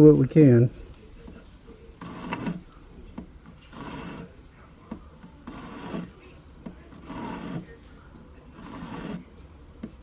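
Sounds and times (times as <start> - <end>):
metal file filing a ring: 2.0 - 2.6, 3.7 - 4.4, 5.4 - 6.2, 6.9 - 7.8, 8.5 - 9.4.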